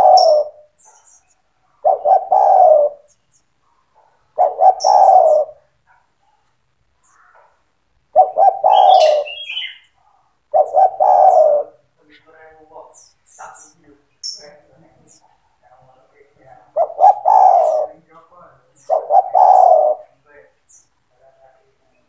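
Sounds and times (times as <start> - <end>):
dove cooing: 0.0 - 6.4, 7.1 - 11.9, 16.6 - 18.2, 18.8 - 20.2
small bird chirping: 0.0 - 15.6, 16.5 - 21.0.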